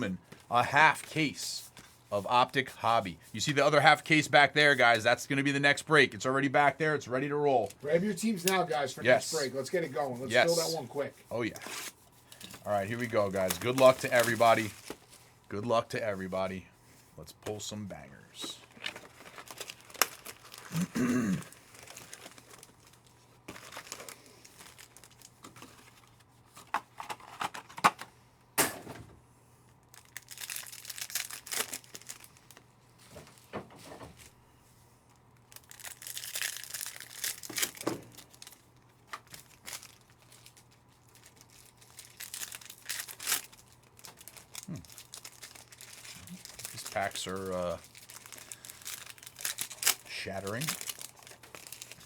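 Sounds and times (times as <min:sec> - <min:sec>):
card pack wrappers crinkling: 0:11.4 - 0:16.5, 0:17.4 - 0:28.0, 0:29.8 - 0:32.8, 0:35.3 - 0:52.0.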